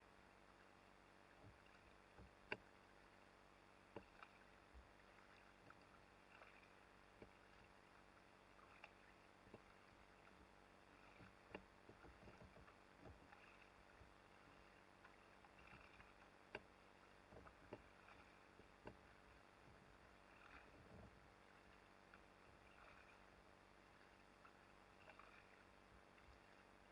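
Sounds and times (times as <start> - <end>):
low steady hiss: 0.0 - 26.9
muffled knocks from kayak: 1.4 - 2.7, 10.3 - 14.2, 15.5 - 21.2.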